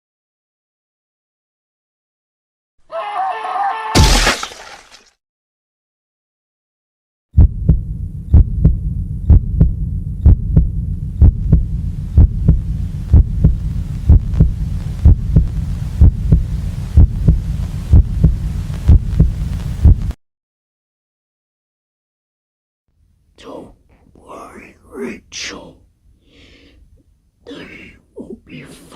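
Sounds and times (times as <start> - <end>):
steady low drone: 7.4 - 19.2
heartbeat double thump: 7.4 - 20.2.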